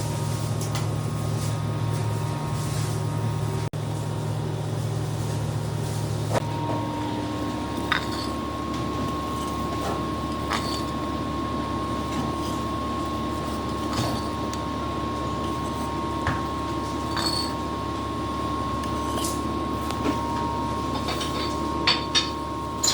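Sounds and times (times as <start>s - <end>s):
steady hum: 0.0s - 22.9s
utensils clinking on cookware: 7.8s - 8.4s, 9.1s - 11.0s, 17.0s - 17.6s, 20.1s - 22.9s.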